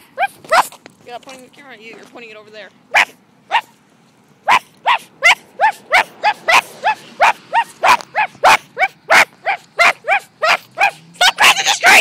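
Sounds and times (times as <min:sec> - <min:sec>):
girls imitating dog barks: 0:04.5 - 0:12.0.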